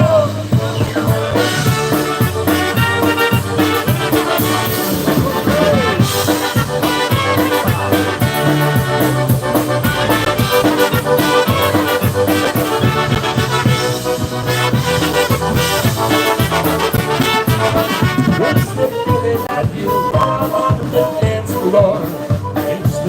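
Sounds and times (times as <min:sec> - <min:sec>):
polka band playing: 0:00.0 - 0:23.0.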